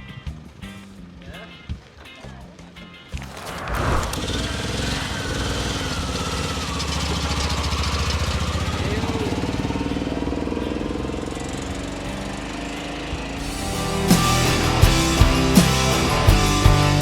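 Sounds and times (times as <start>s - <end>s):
engine running at low revs: 3.7s - 16.6s.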